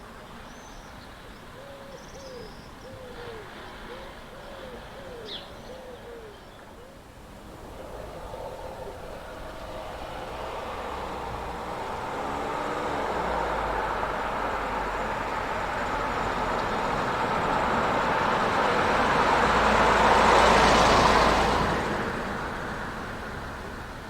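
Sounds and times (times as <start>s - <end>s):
vehicle passing by: 7.2s - 24.0s.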